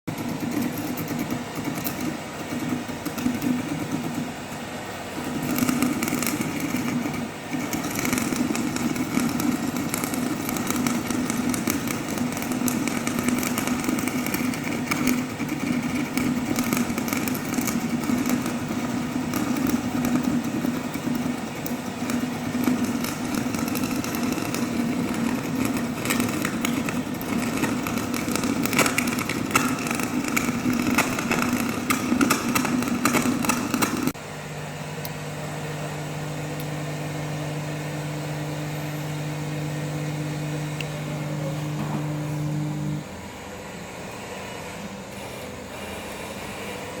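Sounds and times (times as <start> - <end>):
furnace crackling: 0.0 - 34.4
electric arc furnace buzzing: 0.0 - 47.0.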